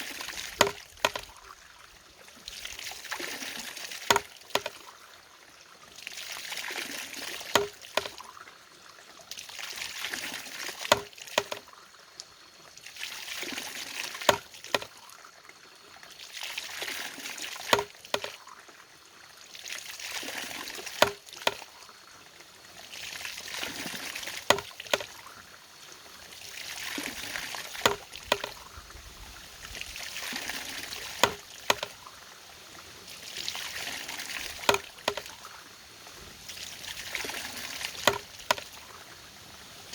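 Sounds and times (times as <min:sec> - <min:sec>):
water pouring and splashing: 0:00.0 - 0:39.9
sharp knock of mechanism: 0:04.1 - 0:04.7, 0:07.6 - 0:08.1, 0:10.9 - 0:11.6, 0:21.0 - 0:21.6, 0:24.5 - 0:25.1, 0:31.2 - 0:32.0, 0:38.1 - 0:38.6.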